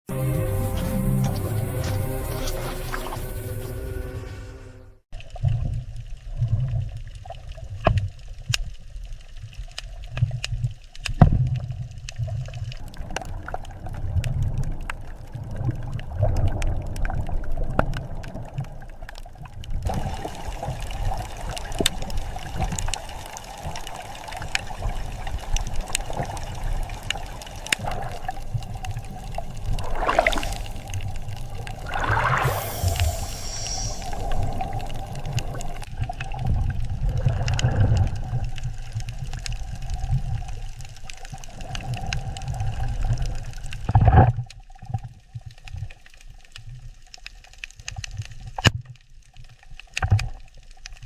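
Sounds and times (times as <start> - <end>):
underwater low rumble: 0.2 - 51.0
bubbling: 12.2 - 44.2.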